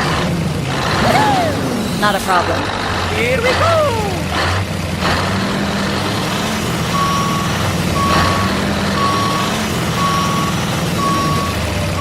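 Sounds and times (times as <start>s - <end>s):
engine rumble: 0.0s - 12.0s
truck reversing alarm beeping: 6.8s - 12.0s.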